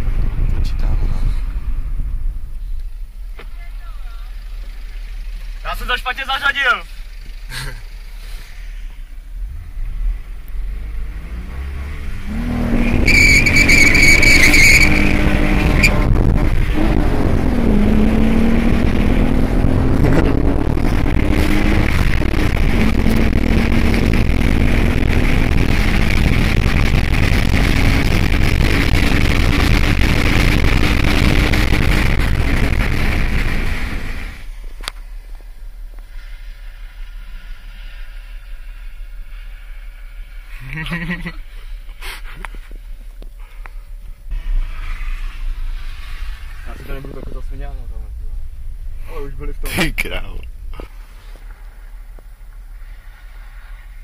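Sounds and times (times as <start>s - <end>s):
wind noise: 0.0s - 3.5s, 11.5s - 34.7s
car engine accelerating: 0.0s - 54.0s
road noise: 0.0s - 54.0s
tyre squeal: 12.7s - 16.0s.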